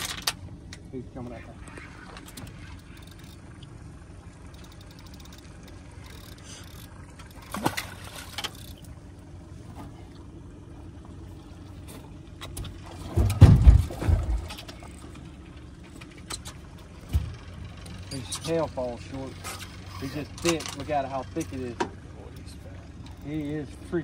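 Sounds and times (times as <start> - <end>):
water splashing against boat hull: 4.4 - 16.3
heavy deep thuds: 13.0 - 14.6.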